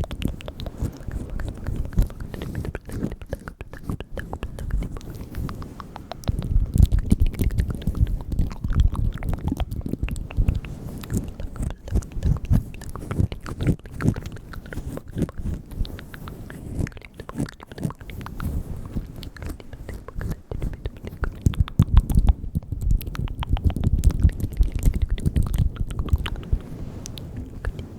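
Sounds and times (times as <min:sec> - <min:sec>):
wet mouth clicks and smacks: 0:00.0 - 0:27.9.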